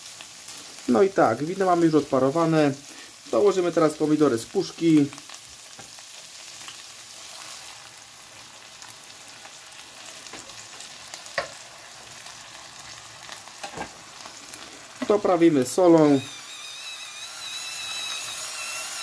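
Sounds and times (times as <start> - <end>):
food sizzling in a frying pan: 0.0 - 19.0.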